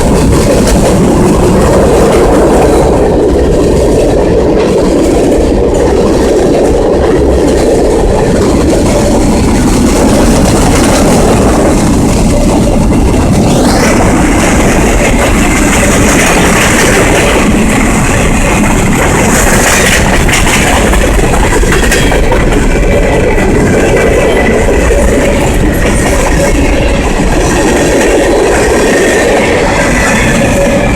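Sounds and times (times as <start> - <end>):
freight train rumbling: 0.0 - 30.9
wheel clatter over rail joints: 0.0 - 30.9.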